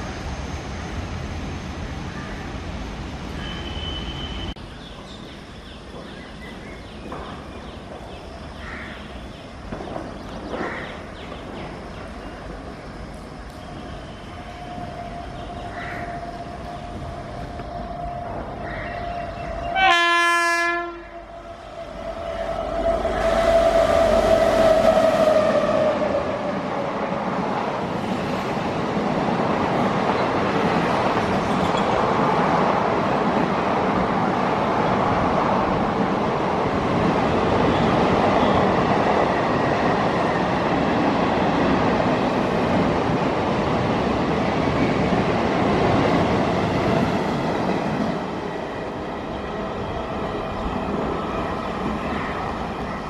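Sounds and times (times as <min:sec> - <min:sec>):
train wheels running over rails: 0:05.9 - 0:19.8, 0:21.7 - 0:53.0
locomotive horn: 0:19.7 - 0:21.3.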